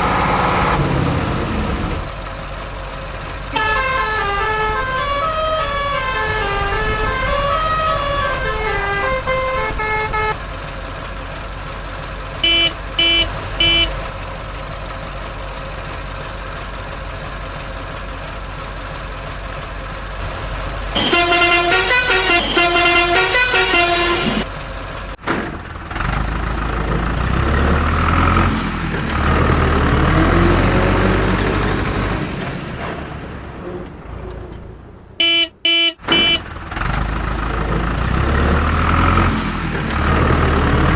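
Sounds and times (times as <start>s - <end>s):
steady engine drone: 0.0s - 34.1s
rapid honking: 3.5s - 10.6s, 12.4s - 14.2s, 20.9s - 24.5s, 33.6s - 36.7s
horn melody: 3.6s - 10.4s, 12.4s - 14.0s, 21.0s - 24.5s, 35.2s - 36.4s
short horn toots: 3.6s - 10.4s, 12.4s - 14.0s, 21.0s - 24.5s, 35.2s - 36.5s.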